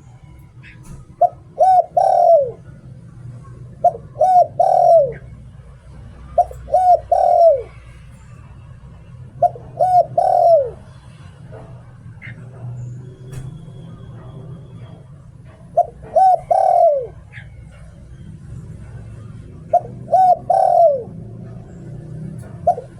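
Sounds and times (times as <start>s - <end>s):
dove cooing: 0.0s - 22.9s.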